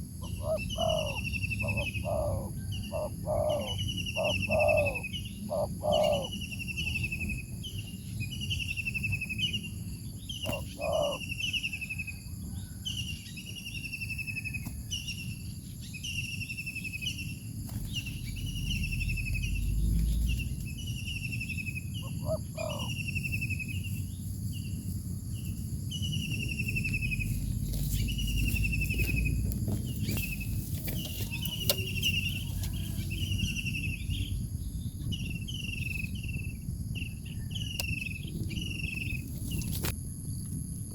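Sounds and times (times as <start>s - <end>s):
high insect drone: 0.0s - 14.5s, 15.2s - 40.9s
songbird trilled call: 0.0s - 24.7s, 25.9s - 39.8s.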